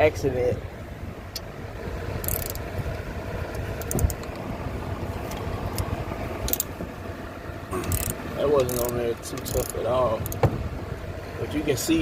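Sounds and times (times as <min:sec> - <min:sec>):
cooling fan rumble: 0:00.0 - 0:12.0
ratchet metallic clicks: 0:02.2 - 0:02.7, 0:03.5 - 0:04.4, 0:05.8 - 0:06.7, 0:07.8 - 0:10.4.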